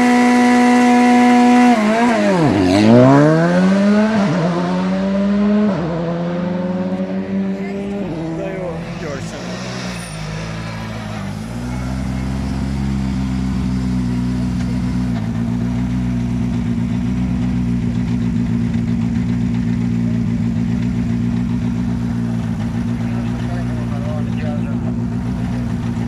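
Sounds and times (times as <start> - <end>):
car engine idling: 5.4 - 26.0.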